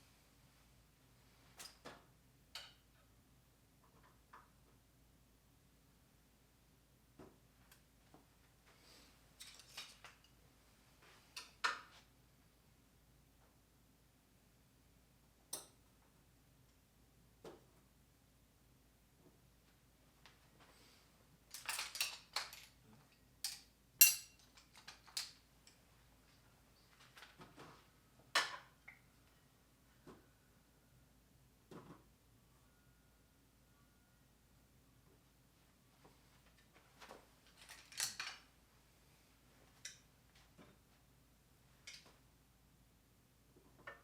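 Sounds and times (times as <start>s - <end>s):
metal hand tools clinking: 23.4s - 25.3s.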